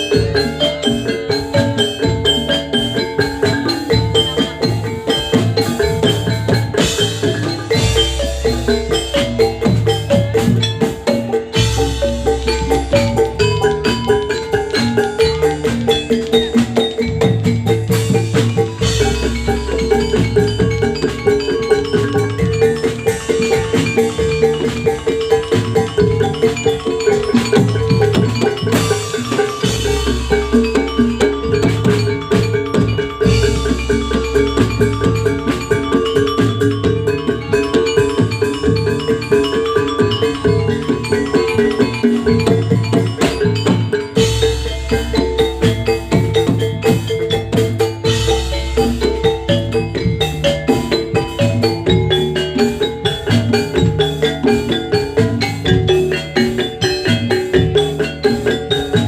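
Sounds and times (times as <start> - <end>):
metal mallet instruments playing: 0.0 - 59.0
steady drum beat: 0.0 - 59.0.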